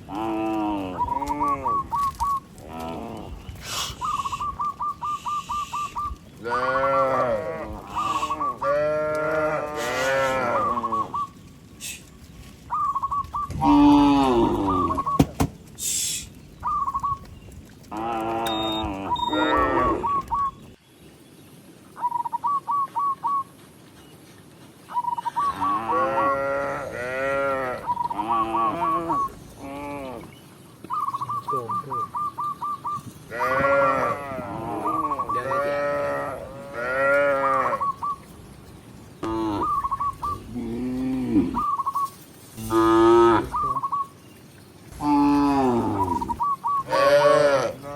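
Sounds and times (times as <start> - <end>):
cows mooing: 0.0 - 4.1, 5.8 - 12.0, 13.5 - 15.1, 17.9 - 20.4, 25.4 - 30.3, 33.0 - 38.1, 39.2 - 41.9, 42.5 - 43.9, 44.9 - 47.9.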